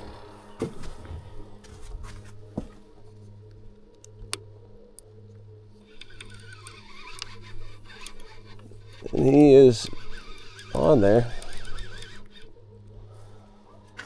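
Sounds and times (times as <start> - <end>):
fishing reel gear hum: 3.0 - 14.0
sharp reel clicks: 3.1 - 14.0.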